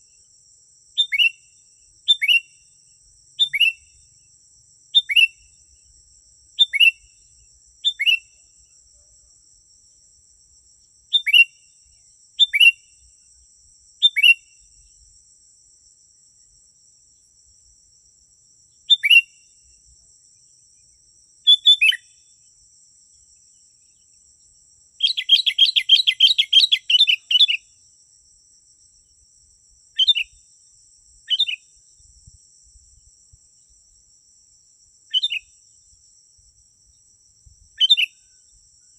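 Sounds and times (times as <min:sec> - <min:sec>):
bird chirping: 0:01.0 - 0:01.5, 0:02.1 - 0:02.6, 0:03.4 - 0:04.1, 0:04.9 - 0:05.6, 0:06.6 - 0:07.2, 0:07.8 - 0:08.4, 0:11.1 - 0:11.7, 0:12.4 - 0:12.9, 0:14.0 - 0:14.6, 0:18.8 - 0:19.5, 0:20.8 - 0:22.4, 0:25.0 - 0:27.7, 0:30.0 - 0:30.4, 0:31.3 - 0:31.6, 0:35.1 - 0:35.5, 0:37.8 - 0:38.5
bird chattering: 0:25.0 - 0:27.6.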